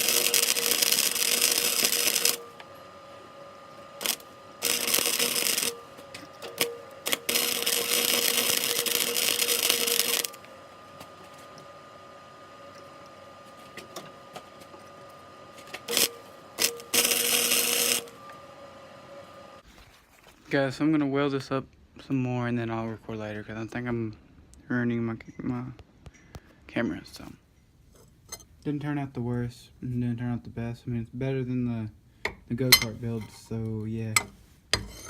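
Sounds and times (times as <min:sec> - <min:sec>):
arc welding hissing bursts: 0:00.0 - 0:02.6, 0:04.0 - 0:06.0, 0:06.6 - 0:10.4, 0:15.9 - 0:18.2
faint steady hum: 0:00.0 - 0:35.0.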